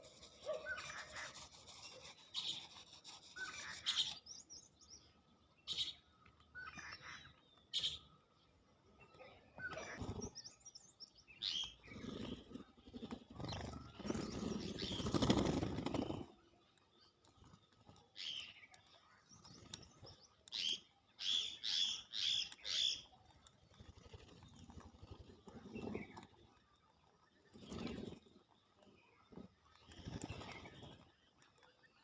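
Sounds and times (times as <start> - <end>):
scratchy rustling: 0.0 - 4.2
birds chirping and calling: 0.0 - 32.0.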